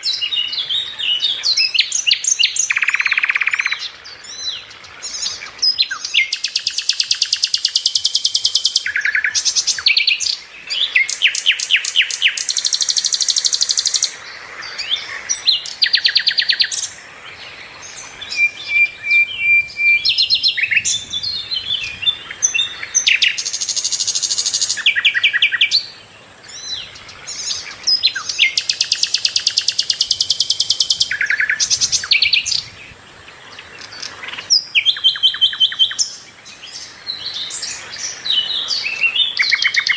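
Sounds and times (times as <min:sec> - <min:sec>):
bird singing fast high trills: 0:17.8 - 0:32.7.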